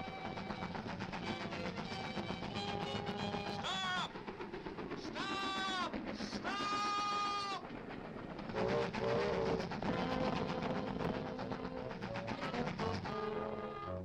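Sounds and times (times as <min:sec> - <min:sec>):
continuous rumbling: 0:00.0 - 0:14.0
steam locomotive whistle: 0:08.6 - 0:14.0.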